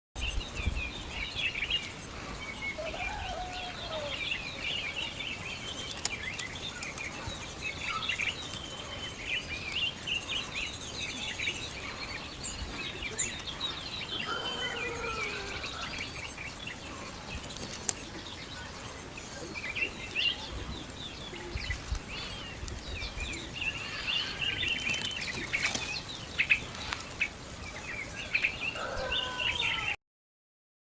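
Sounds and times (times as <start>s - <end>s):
small birds chirping: 0.2s - 30.0s
lower gliding bird calls: 11.8s - 16.3s.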